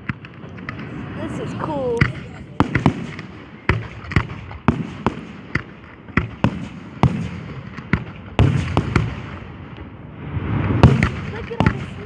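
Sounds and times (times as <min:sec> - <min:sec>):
fireworks exploding: 0:00.4 - 0:03.6.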